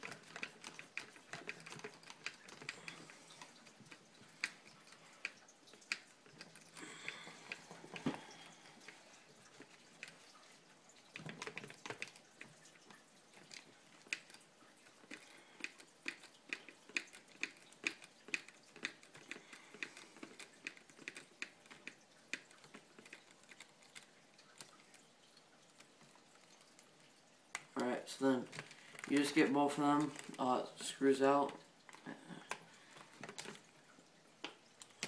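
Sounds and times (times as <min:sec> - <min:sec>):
handling rustle: 0:25.7 - 0:33.8.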